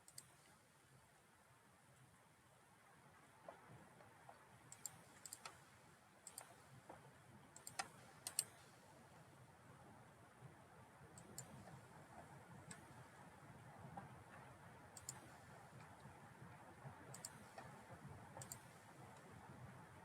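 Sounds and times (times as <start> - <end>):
computer mouse clicks: 0.0 - 0.5, 4.7 - 5.6, 6.2 - 6.6, 7.5 - 8.6, 11.2 - 11.7, 12.6 - 13.0, 14.4 - 16.1, 17.1 - 19.3
quiet room hum: 0.0 - 20.0.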